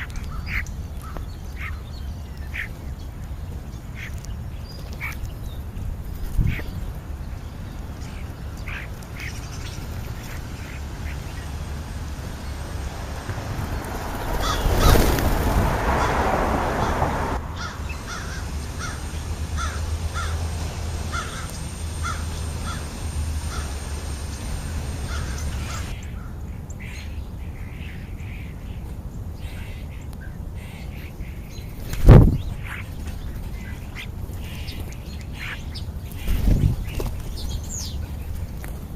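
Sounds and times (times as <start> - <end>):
rush of noise: 6.3 - 26.0
crows cawing: 14.0 - 26.0.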